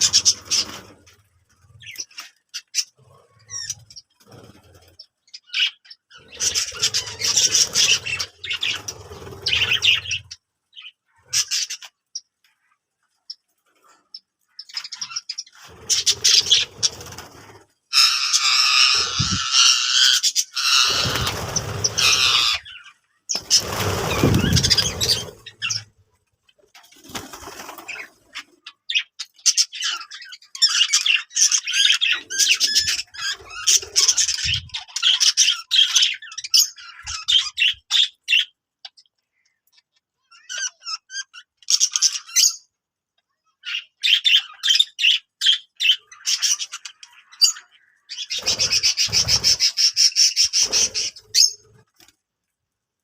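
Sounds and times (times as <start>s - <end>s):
budgerigars chirping: 0.0s - 1.0s, 1.7s - 12.3s, 13.3s - 26.0s, 27.8s - 42.6s, 43.6s - 51.8s
wings flapping: 0.0s - 1.2s, 6.3s - 10.3s, 15.6s - 17.8s, 20.6s - 25.9s, 26.7s - 28.6s, 48.3s - 52.2s.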